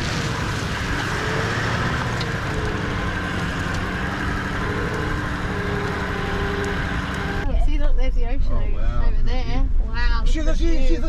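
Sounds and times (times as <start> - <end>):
vehicle engine and road noise: 0.0 - 10.6.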